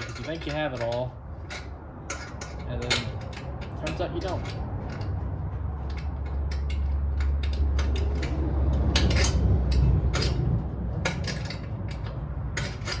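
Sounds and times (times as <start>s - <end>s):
hand tools clinking on metal: 0.0s - 13.0s.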